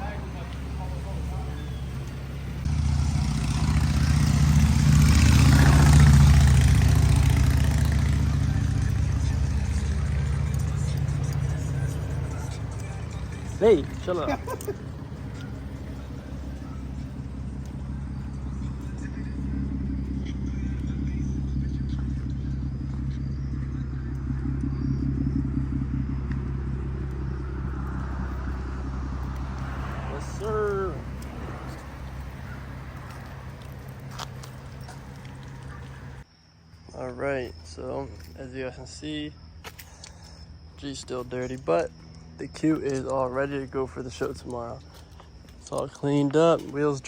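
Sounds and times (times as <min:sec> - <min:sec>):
car engine idling: 0:00.0 - 0:36.3.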